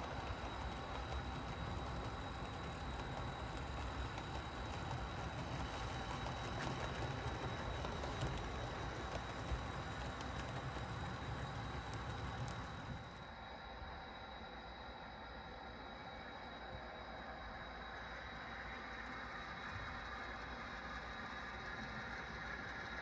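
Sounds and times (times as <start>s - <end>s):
wheels clicking over rail joints: 0.0s - 13.0s
model train rumble: 0.0s - 13.2s
faint whine: 0.0s - 23.0s.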